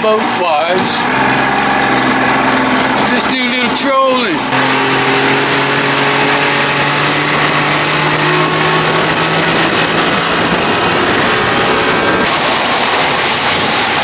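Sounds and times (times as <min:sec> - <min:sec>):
boat motor running: 0:00.0 - 0:14.0
rushing water: 0:00.0 - 0:14.0
wind noise: 0:04.4 - 0:14.0.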